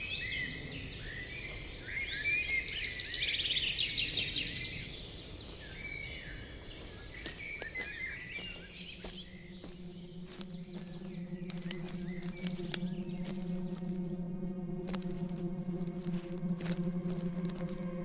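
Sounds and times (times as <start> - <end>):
low musical drone: 0.0 - 3.4, 8.0 - 18.0
birds chirping: 0.0 - 18.0.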